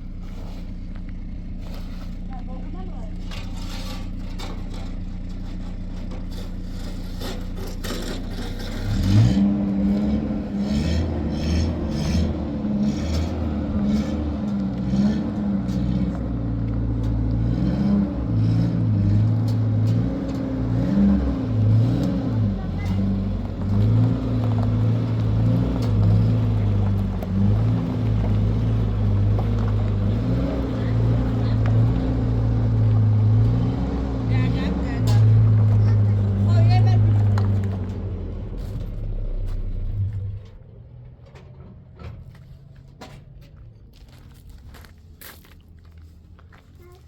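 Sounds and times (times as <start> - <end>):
vehicle engine revving: 0.0 - 40.6.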